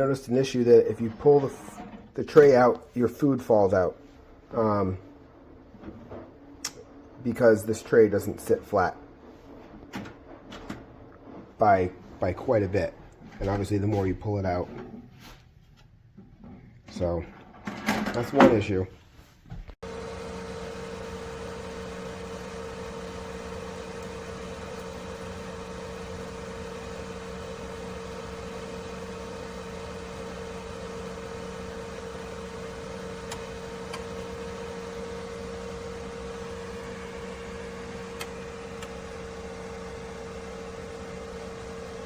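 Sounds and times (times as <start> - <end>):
oven fan hum: 19.8 - 42.0.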